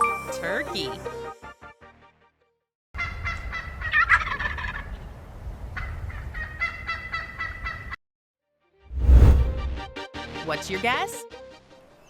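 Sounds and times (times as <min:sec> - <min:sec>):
turkey gobbling: 0:03.0 - 0:05.0, 0:05.8 - 0:08.0.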